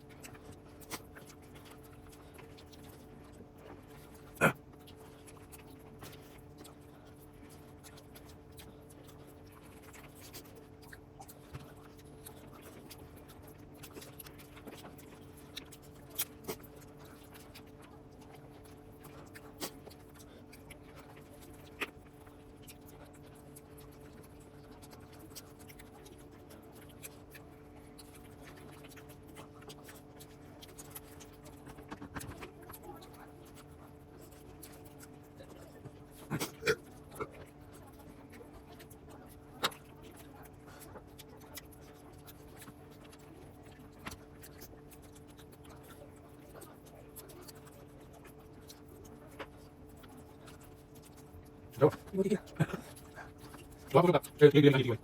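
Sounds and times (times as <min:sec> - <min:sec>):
eating clicks and scraping: 0:00.0 - 0:55.0
steady low hum: 0:00.0 - 0:55.0.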